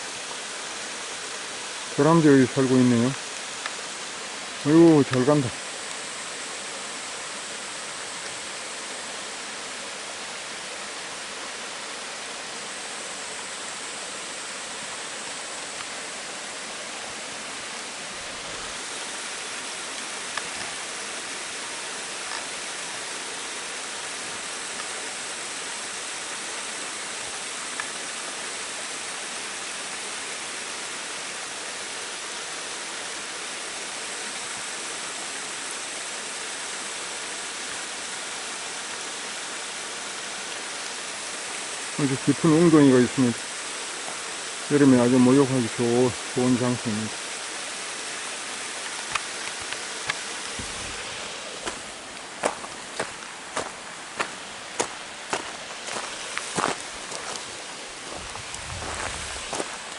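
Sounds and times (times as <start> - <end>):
stream rushing over rocks: 0.0 - 59.9
faint ticks: 3.3 - 3.8, 22.2 - 22.6, 27.7 - 28.0.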